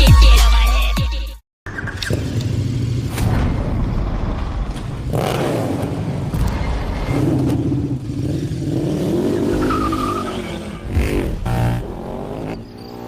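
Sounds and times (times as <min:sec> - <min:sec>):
superbike engine revving: 0:01.7 - 0:03.2, 0:05.0 - 0:13.0.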